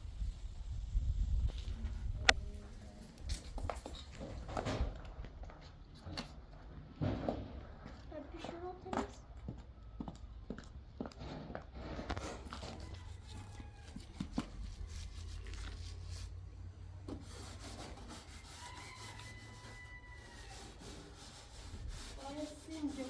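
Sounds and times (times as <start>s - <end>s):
surface being scrubbed: 11.8s - 23.0s.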